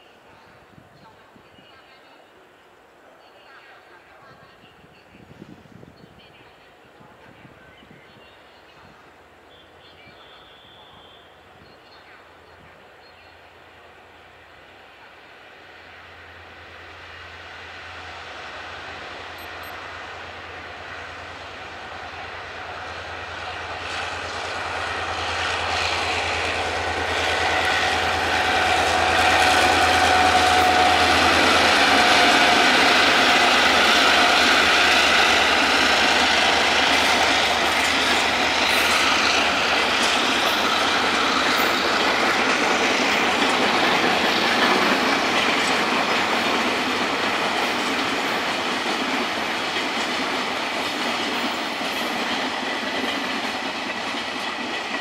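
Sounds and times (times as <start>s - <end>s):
locomotive engine drone: 16.3s - 48.5s
wheels clacking over rail joints: 23.5s - 55.0s.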